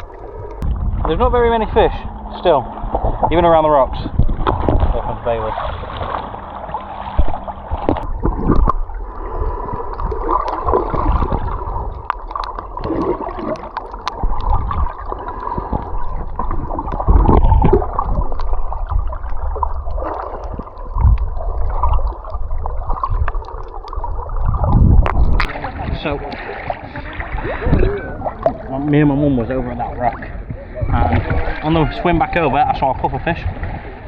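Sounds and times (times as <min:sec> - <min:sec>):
heavy low thumps: 0:00.0 - 0:05.4, 0:24.5 - 0:26.3
water gurgling and sloshing: 0:00.0 - 0:34.0
water splashes: 0:00.0 - 0:34.0
crackling clicks: 0:11.9 - 0:22.2, 0:23.0 - 0:25.6.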